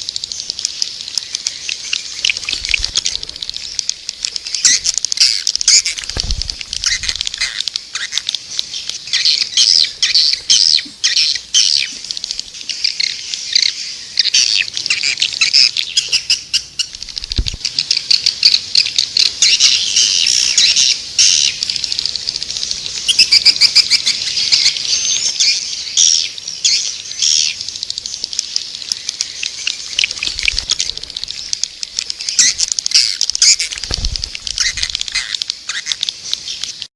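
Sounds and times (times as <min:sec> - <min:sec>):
swiftlets twittering: 0:00.0 - 0:15.2, 0:27.4 - 0:36.8.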